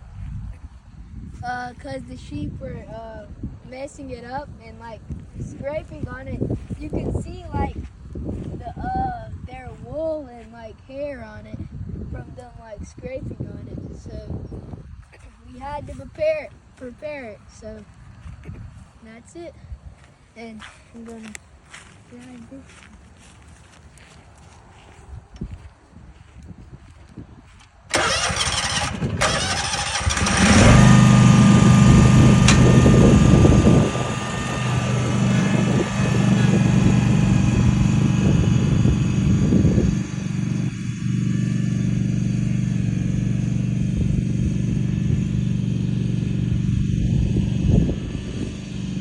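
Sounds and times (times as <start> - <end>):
angle grinder grinding: 30.0 - 40.9.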